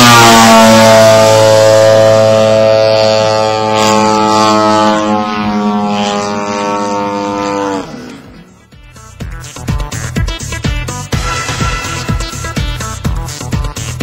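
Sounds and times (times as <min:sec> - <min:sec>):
low drone-like tone: 0:00.0 - 0:08.8.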